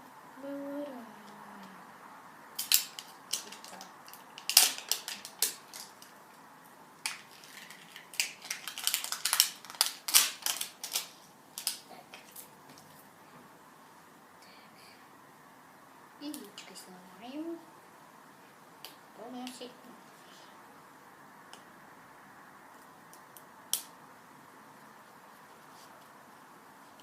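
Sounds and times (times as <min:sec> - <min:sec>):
plastic wrapping crinkling: 0:02.6 - 0:06.1, 0:07.0 - 0:12.5.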